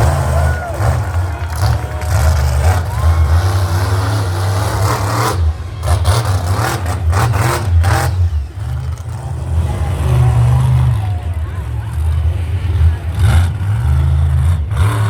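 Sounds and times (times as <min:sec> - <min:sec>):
monster truck engine revving: 0:00.0 - 0:15.0.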